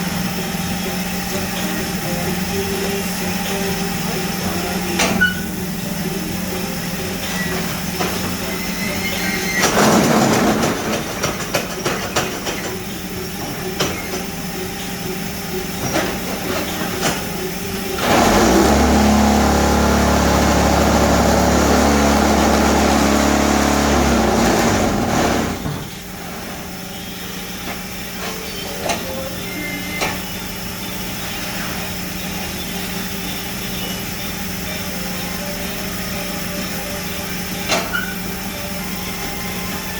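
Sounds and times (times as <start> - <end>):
machine humming: 0.0 - 39.9
vibrator rattling: 0.0 - 39.9
knocks and clanks: 7.2 - 15.0, 15.8 - 17.4, 18.0 - 29.3.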